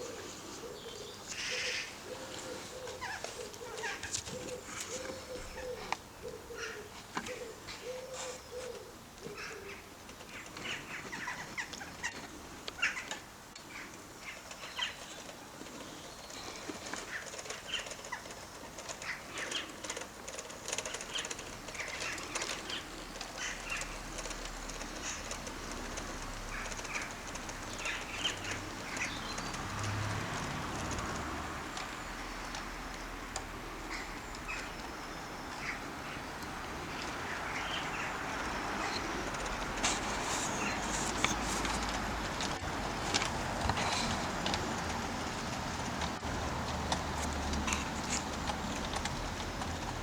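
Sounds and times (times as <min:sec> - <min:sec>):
pigeon cooing: 0:00.0 - 0:12.2, 0:32.3 - 0:50.0
birds chirping: 0:00.0 - 0:50.0.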